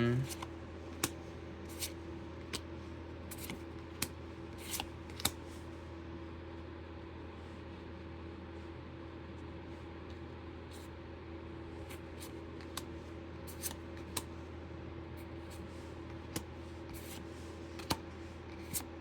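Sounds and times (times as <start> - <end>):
trading cards clicking: 0.3 - 2.7, 3.3 - 5.4.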